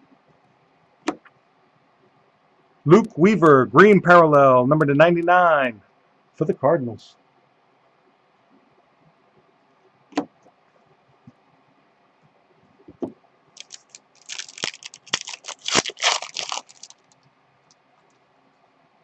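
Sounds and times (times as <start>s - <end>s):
foil pack tearing and crinkling: 13.6s - 17.2s.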